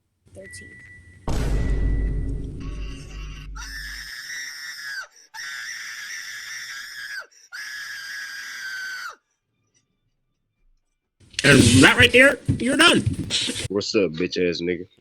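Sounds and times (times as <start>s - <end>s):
high-pitched screaming: 3.3s - 4.9s.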